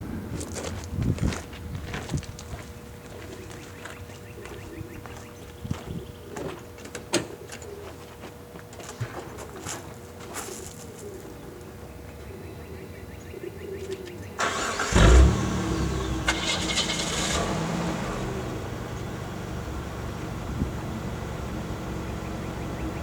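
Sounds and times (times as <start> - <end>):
car engine cranking and starting: 14.4 - 23.0
car engine running steadily: 14.4 - 23.0.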